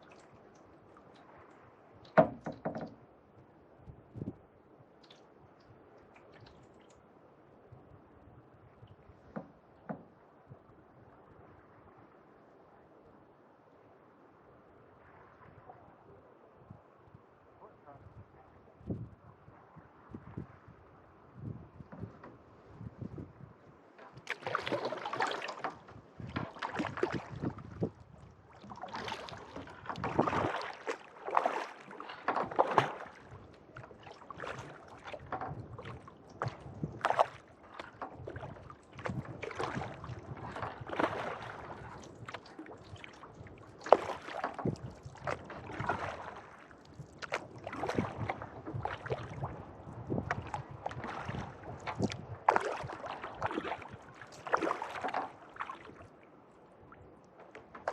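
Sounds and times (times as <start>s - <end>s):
paddle strokes splashing water: 0.0s - 3.2s, 4.9s - 7.3s, 23.7s - 57.9s.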